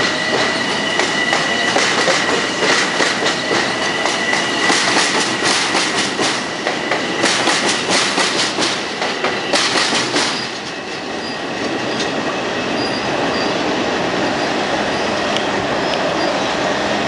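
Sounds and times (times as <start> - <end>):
train wheels clacking over rail joints: 0.0 - 13.0
train rolling rumble: 0.0 - 17.0
faint wheel squeal: 0.1 - 4.7.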